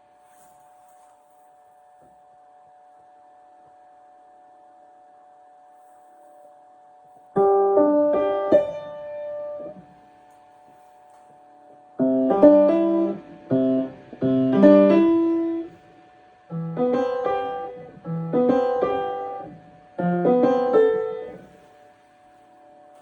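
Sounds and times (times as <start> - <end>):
piano played in short phrases: 7.4 - 9.9, 12.0 - 15.8, 16.5 - 21.5.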